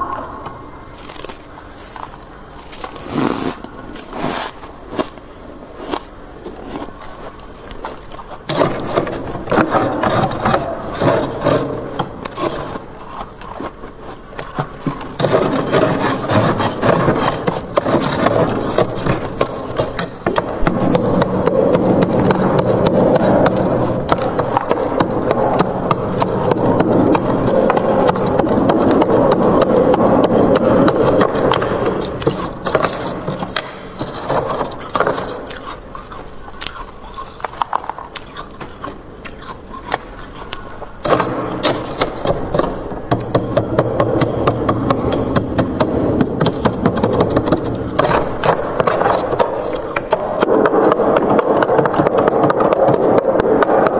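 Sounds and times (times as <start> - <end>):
frost scraped off freezer: 0.9 - 5.2, 5.8 - 42.8.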